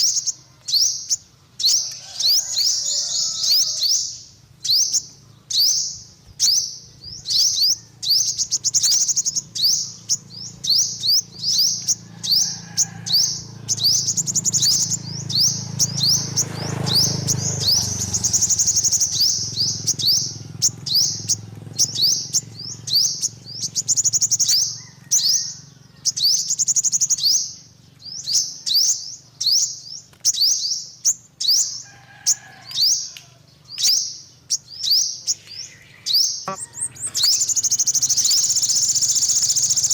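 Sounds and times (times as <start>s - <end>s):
sunbird chirping: 0.0s - 39.9s.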